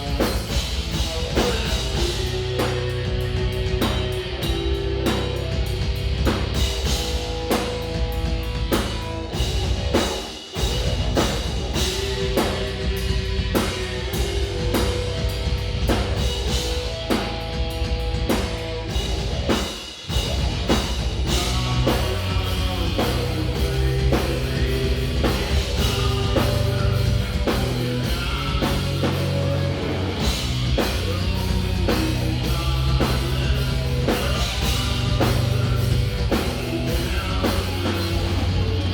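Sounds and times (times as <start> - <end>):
bass guitar: 0.0 - 38.9
distorted electric guitars: 0.0 - 38.9
drum kit: 0.0 - 38.9.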